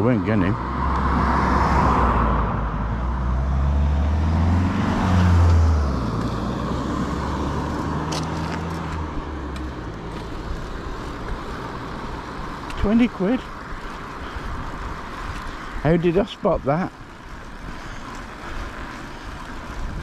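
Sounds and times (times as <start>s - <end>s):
vehicle engine passing by: 0.0s - 14.9s.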